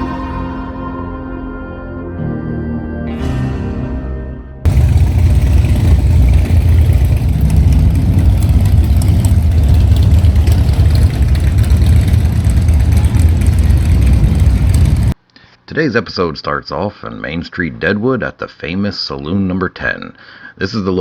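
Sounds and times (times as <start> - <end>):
motorcycle engine rumbling: 4.7 - 15.2.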